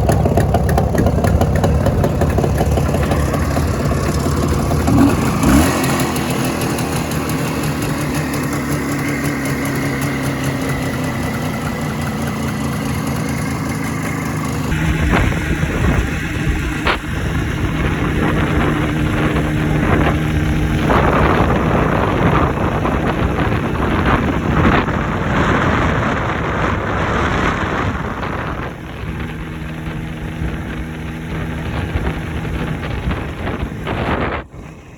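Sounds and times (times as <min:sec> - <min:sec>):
two-stroke motorcycle engine running: 0:00.0 - 0:34.9
wind noise on microphone: 0:14.5 - 0:34.9.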